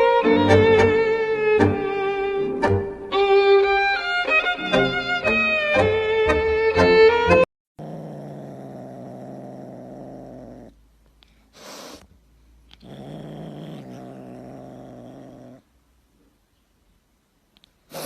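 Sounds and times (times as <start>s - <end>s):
cat purring loudly: 7.8s - 10.8s, 12.7s - 15.7s
short breathy hiss: 11.3s - 12.1s.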